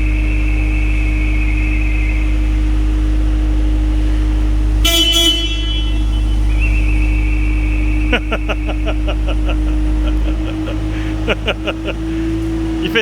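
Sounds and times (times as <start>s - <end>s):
high mouth whistle: 0.0s - 3.8s, 4.8s - 9.3s
harsh horn toot: 0.0s - 13.0s
train rumble and hum: 0.0s - 13.0s.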